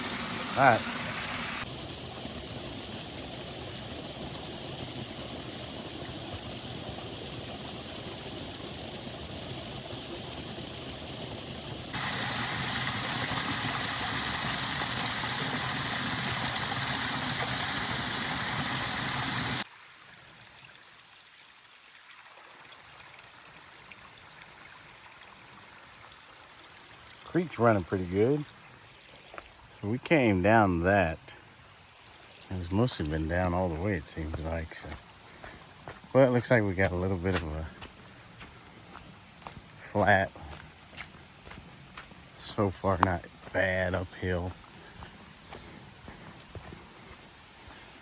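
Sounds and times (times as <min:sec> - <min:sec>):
waterfall and creek rushing: 0:00.0 - 0:04.9, 0:07.3 - 0:19.7, 0:32.1 - 0:48.0.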